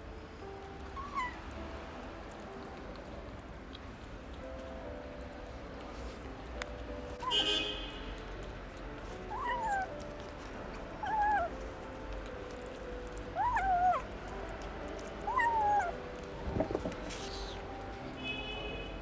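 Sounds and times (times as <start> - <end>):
kitten meowing: 1.0 - 1.4, 9.3 - 10.0, 11.0 - 11.6, 13.4 - 14.2, 15.2 - 17.7
soft knocks: 16.4 - 17.1.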